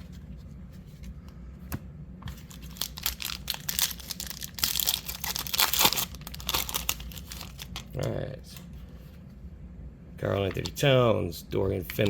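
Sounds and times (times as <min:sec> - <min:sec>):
wrapper tearing and crinkling: 0:02.4 - 0:07.9.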